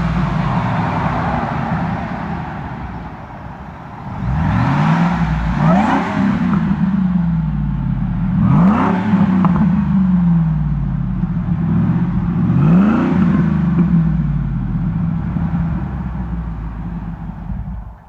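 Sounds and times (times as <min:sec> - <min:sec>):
engine revving from idle: 0:04.0 - 0:18.0.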